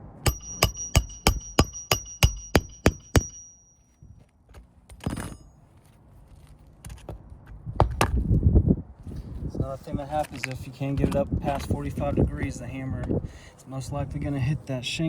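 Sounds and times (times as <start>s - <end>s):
hammer striking nail: 0.0s - 3.7s.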